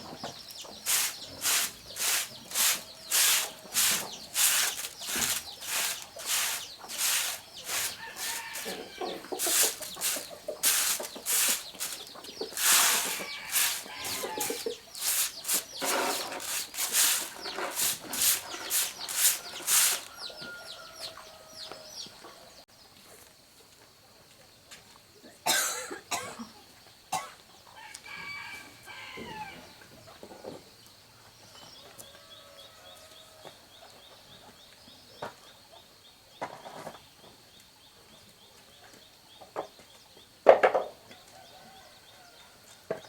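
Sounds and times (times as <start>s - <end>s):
chickens clucking: 0.0s - 21.3s
small birds chirping: 0.0s - 22.2s
scraping strokes: 0.8s - 20.5s.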